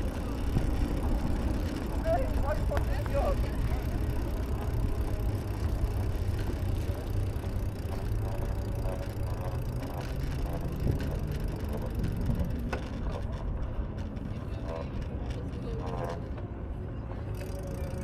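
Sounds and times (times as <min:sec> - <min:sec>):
wind buffeting microphone: 0:00.0 - 0:16.1
bicycle mechanical rattle: 0:00.0 - 0:16.4, 0:17.0 - 0:18.0.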